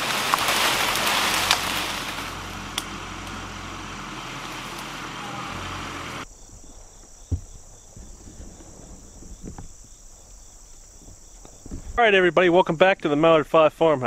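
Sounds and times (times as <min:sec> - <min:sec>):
crickets chirping: 0:00.0 - 0:14.0
dull thump: 0:06.7 - 0:10.0.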